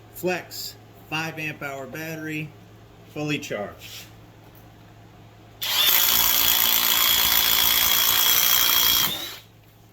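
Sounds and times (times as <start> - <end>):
impact driver whining and rattling: 5.6 - 9.5.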